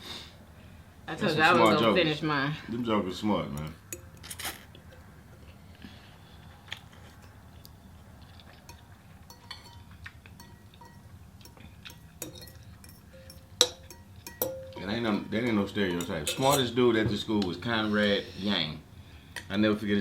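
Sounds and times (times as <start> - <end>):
low steady hum: 0.4 - 17.8
utensils clinking against bowls: 3.5 - 5.6, 8.2 - 16.8.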